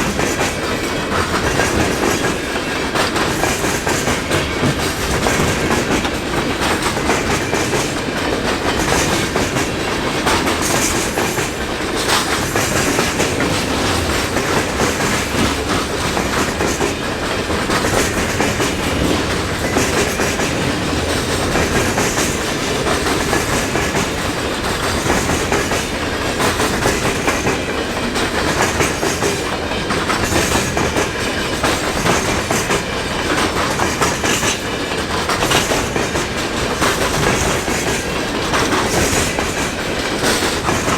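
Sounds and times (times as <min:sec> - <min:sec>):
freight train wheels clickety-clack: 0:00.0 - 0:40.9.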